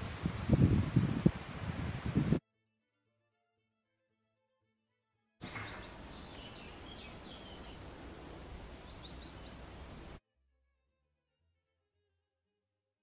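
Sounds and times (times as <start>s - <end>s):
songbird chirping: 5.4s - 10.2s.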